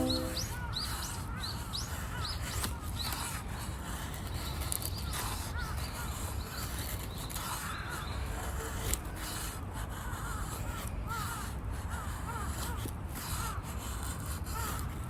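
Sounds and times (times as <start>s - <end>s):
crows cawing: 7.4s - 14.9s.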